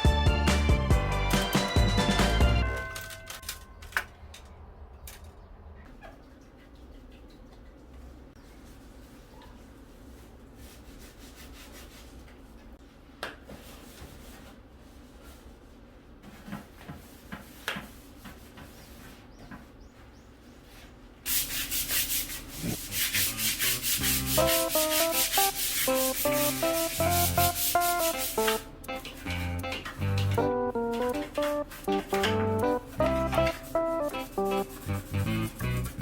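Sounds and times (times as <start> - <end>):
background music plucked melody: 0.0 - 3.4, 24.2 - 36.0
loud scrubbing strokes: 21.3 - 28.6.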